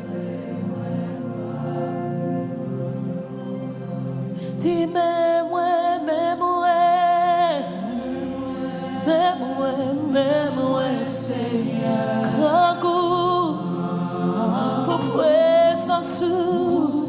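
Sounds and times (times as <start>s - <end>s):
sustained accompaniment: 0.0s - 17.0s
voices singing gospel song: 0.0s - 17.0s.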